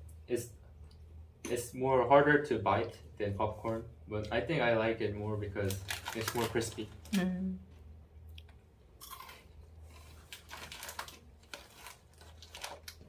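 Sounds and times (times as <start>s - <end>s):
crunching crispy corn snack: 5.6s - 6.9s, 9.0s - 13.0s.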